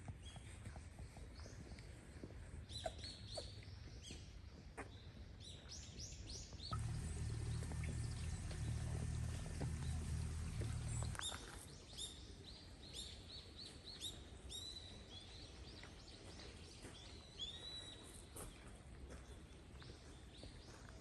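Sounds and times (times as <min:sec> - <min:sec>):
outdoor background noise: 0:00.0 - 0:21.0
small birds chirping: 0:00.1 - 0:18.4
steady low rumble: 0:06.7 - 0:11.2.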